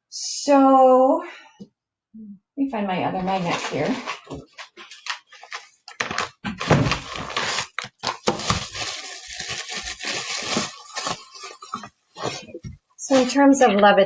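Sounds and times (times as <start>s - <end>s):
small hard objects knocking: 3.3s - 13.4s.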